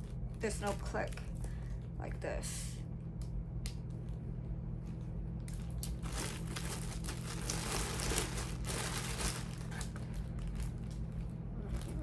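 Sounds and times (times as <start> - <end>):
cords crinkling and rustling: 4.8 - 12.0.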